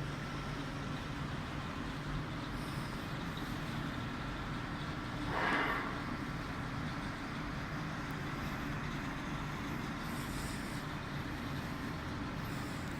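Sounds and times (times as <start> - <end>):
car wash machinery humming: 0.0 - 12.9
short hissing rush: 5.3 - 6.2.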